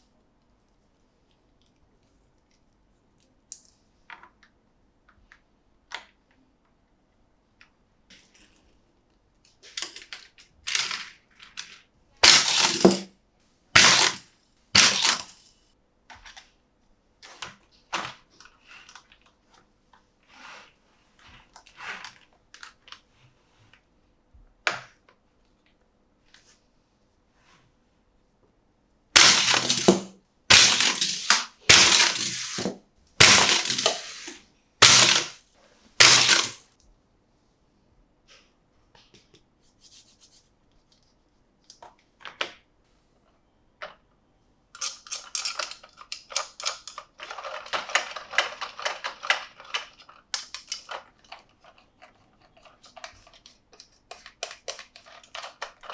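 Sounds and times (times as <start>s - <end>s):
packaging crackling: 13.8s - 14.2s, 14.8s - 15.4s, 29.2s - 35.4s.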